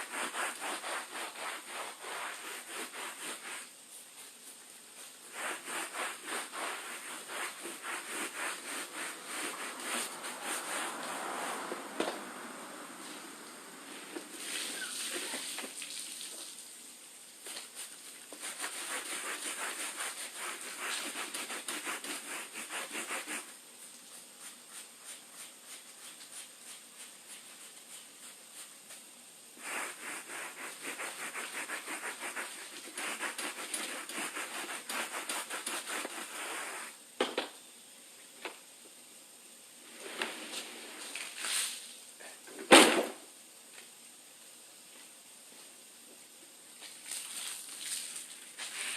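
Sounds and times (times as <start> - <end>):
scrubbing rubber mat: 0.0 - 11.8, 17.6 - 23.6, 24.4 - 36.9.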